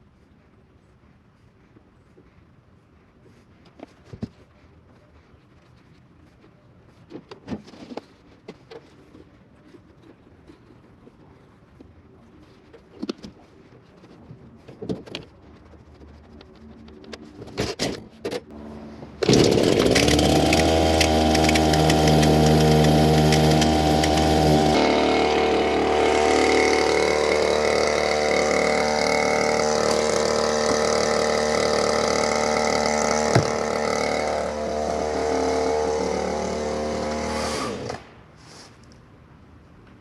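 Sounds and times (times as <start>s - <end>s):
chainsaw engine running: 18.5s - 38.0s.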